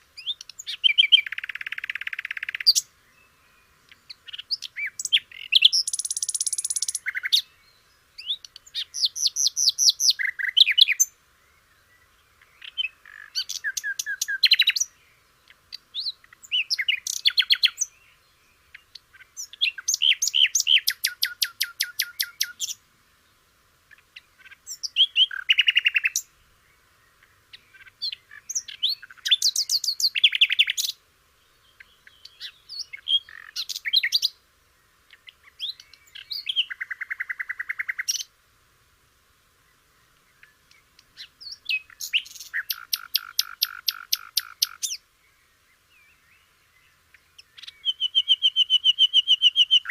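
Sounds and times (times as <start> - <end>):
songbird trilling and whistling: 0.2 - 2.9, 3.9 - 7.5, 8.2 - 11.1, 12.6 - 14.9, 15.9 - 18.1, 18.7 - 22.8, 24.4 - 26.3, 27.5 - 31.0, 31.8 - 34.4, 35.1 - 38.3, 40.4 - 45.0, 47.4 - 49.9.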